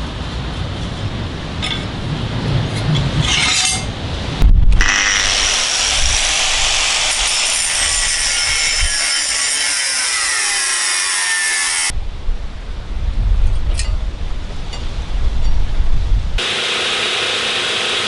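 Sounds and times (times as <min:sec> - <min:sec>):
power tool grinding steel: 0:04.8 - 0:11.9.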